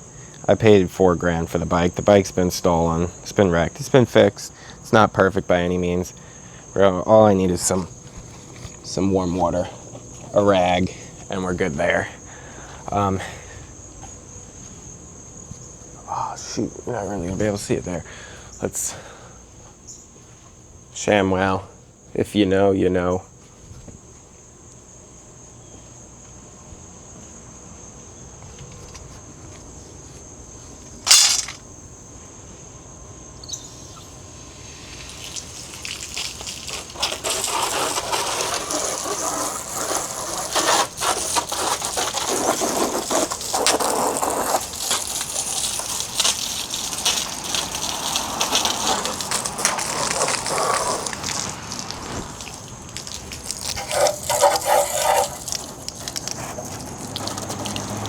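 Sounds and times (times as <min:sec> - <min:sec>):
crickets chirring: 0:00.0 - 0:58.0
rush of running water: 0:34.1 - 0:58.0.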